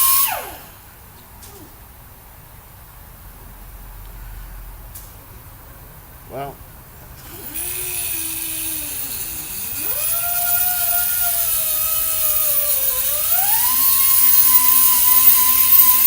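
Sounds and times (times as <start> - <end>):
small high-speed motor whining: 0.0 - 0.7, 7.2 - 16.0.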